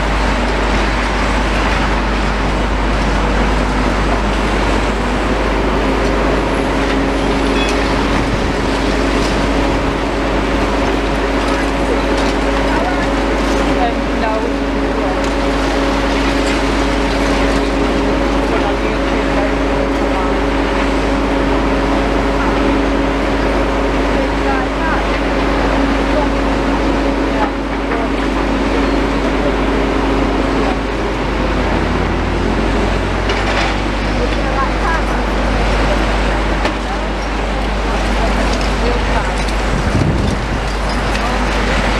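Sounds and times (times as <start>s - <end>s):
diesel engines running: 0.0s - 41.9s
droning tone: 0.0s - 41.9s.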